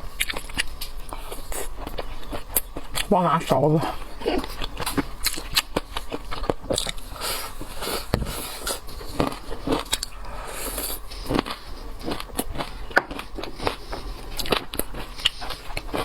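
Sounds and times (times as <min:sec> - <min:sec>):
crunchy chewing: 0:00.0 - 0:16.0.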